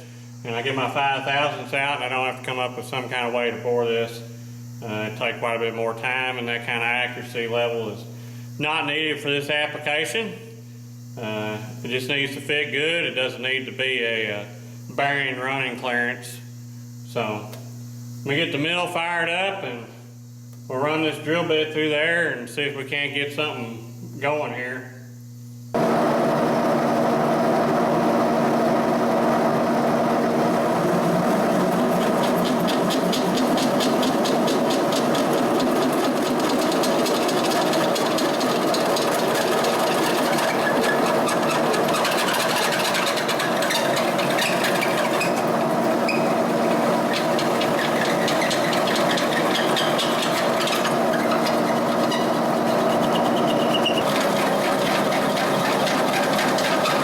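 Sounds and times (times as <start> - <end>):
milling machine motor hum: 25.8 - 57.0.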